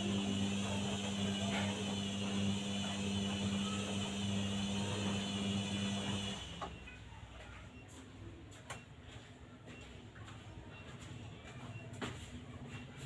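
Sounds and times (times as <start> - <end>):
washing machine spinning: 0.0 - 13.0.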